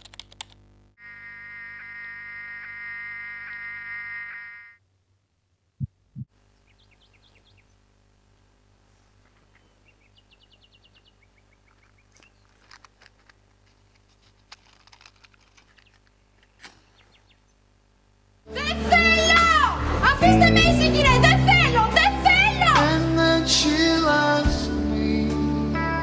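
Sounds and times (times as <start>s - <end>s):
small birds chirping: 6.4s - 7.9s, 9.2s - 12.8s, 15.7s - 17.7s
clicks and rustles: 11.7s - 17.1s.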